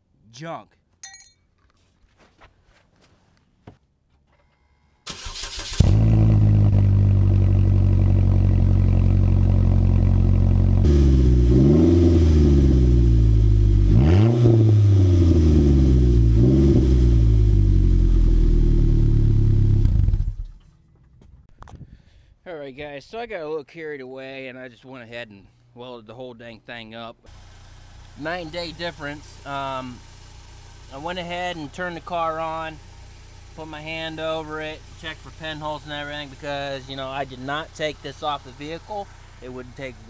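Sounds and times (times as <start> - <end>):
car engine cranking and idling: 5.0 - 21.4, 27.3 - 40.0.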